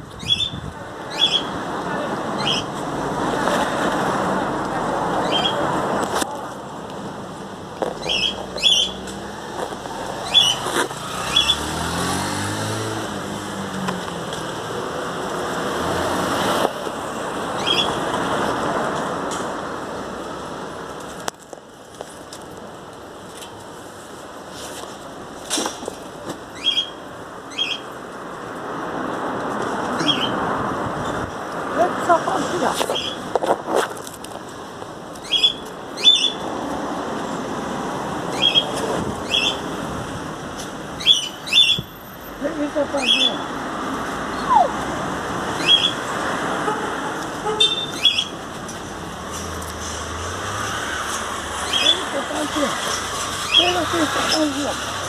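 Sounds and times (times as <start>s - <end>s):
road noise: 0.0s - 55.0s
bird chirping: 8.0s - 9.0s, 10.2s - 10.6s, 26.6s - 27.9s, 35.2s - 36.4s, 41.0s - 41.9s, 45.6s - 46.0s, 47.6s - 48.4s
vehicle engine passing: 8.1s - 20.5s.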